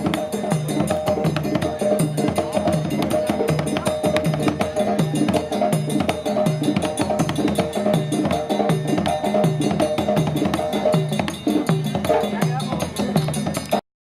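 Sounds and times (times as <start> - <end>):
sharp percussion clicks: 0.0 - 13.8.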